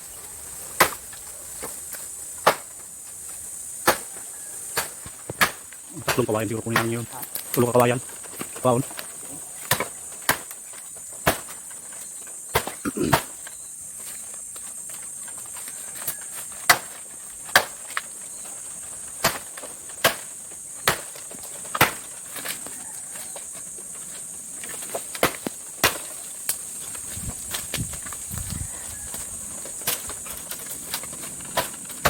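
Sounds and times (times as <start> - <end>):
insect buzz: 0.0 - 32.0
blade chopping bamboo: 0.8 - 1.8, 2.4 - 2.8, 3.8 - 11.8, 12.5 - 13.4, 14.9 - 18.1, 19.1 - 22.8, 24.6 - 28.2.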